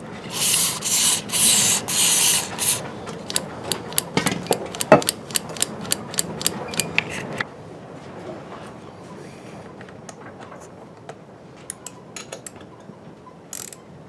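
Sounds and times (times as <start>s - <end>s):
hissing rubbing strokes: 0.0s - 2.8s.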